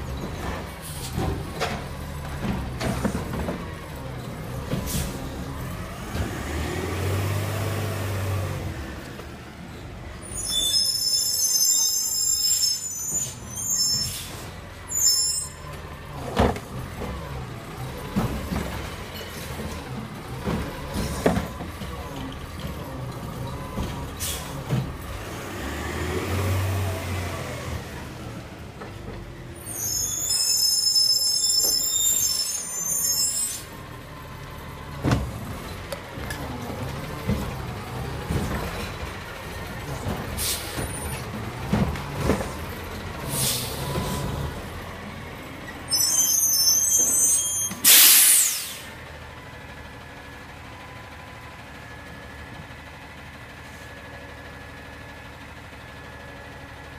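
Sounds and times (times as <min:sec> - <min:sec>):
garbage truck diesel engine: 0:00.0 - 0:56.9
air brake hiss: 0:40.4 - 0:40.8, 0:43.3 - 0:43.8, 0:47.7 - 0:49.0.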